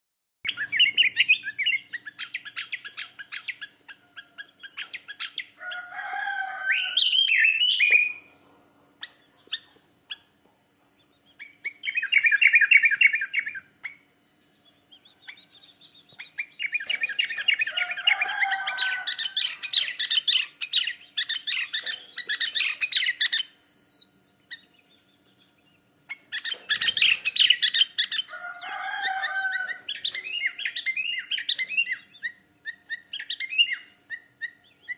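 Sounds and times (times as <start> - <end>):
bulbul singing chirpy phrases: 11.2 - 25.2.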